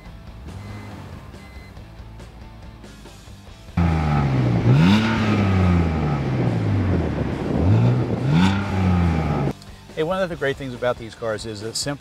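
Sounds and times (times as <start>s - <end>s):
car engine idling and revving: 0.0s - 9.6s.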